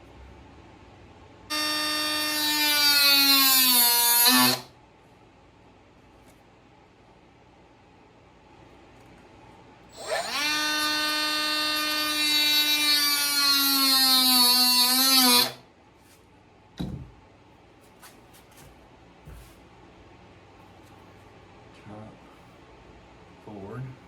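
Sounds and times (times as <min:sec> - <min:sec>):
power tool whining: 0:01.5 - 0:04.7, 0:09.9 - 0:15.6
knock: 0:16.8 - 0:17.2.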